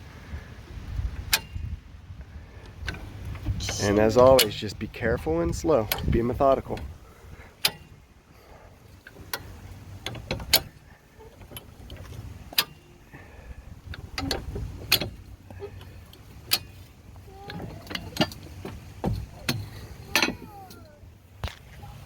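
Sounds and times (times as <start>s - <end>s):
wind on microphone: 0.0s - 4.0s
jack clicking and clanking: 2.6s - 21.9s.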